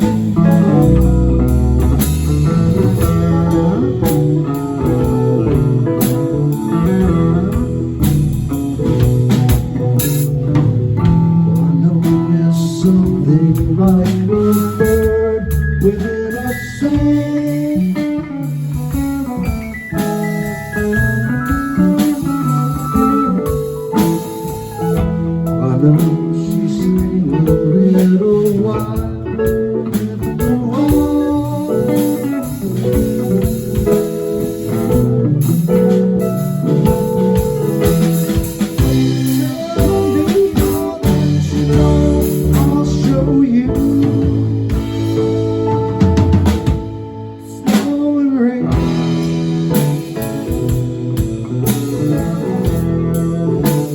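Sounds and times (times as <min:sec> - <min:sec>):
bass: 0:00.0 - 0:53.9
drums: 0:00.0 - 0:53.9
guitar lines: 0:00.0 - 0:53.9.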